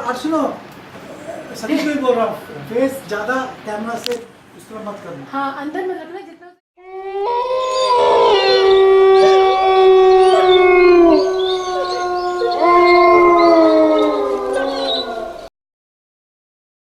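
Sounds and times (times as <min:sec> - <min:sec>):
wolves howling: 0:06.8 - 0:15.5.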